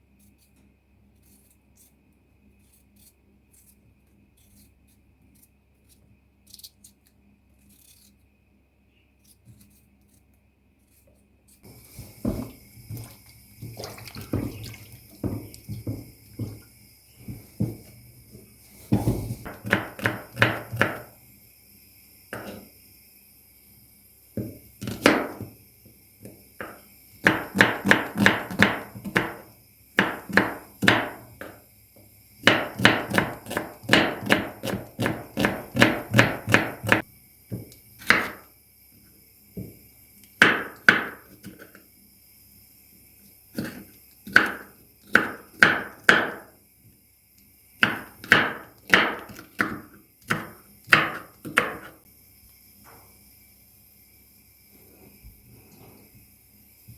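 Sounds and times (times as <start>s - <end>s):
knife chopping on cutting board: 11.6s - 16.6s, 18.9s - 21.1s, 22.3s - 22.7s, 24.4s - 25.6s, 26.6s - 31.6s, 32.4s - 38.5s, 40.4s - 41.8s, 43.6s - 46.5s, 47.8s - 52.0s.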